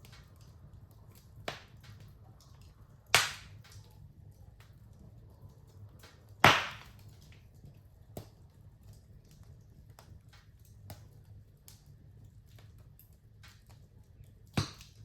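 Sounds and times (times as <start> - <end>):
wood fire crackling: 0.0 - 15.0
sharp pop of fire: 3.1 - 3.6, 6.4 - 7.0, 14.6 - 15.0.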